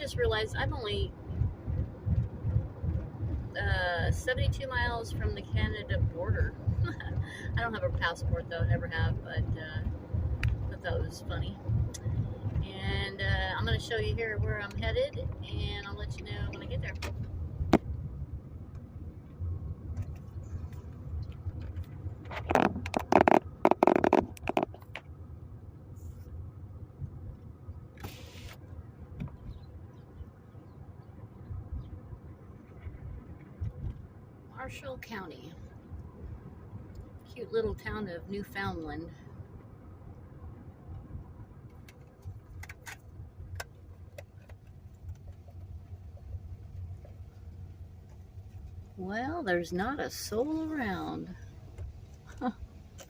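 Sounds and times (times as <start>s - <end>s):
car cabin rumble: 0.0s - 53.0s.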